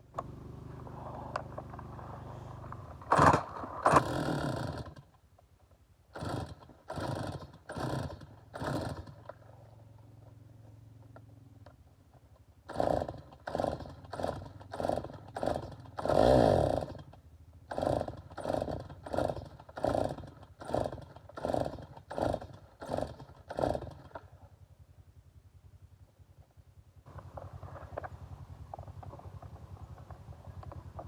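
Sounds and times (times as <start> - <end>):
recoil starter cord pulls: 0.1 - 5.2, 6.2 - 9.6, 12.7 - 24.3
chainsaw engine burst: 0.2 - 5.1, 6.1 - 9.4, 12.6 - 24.3.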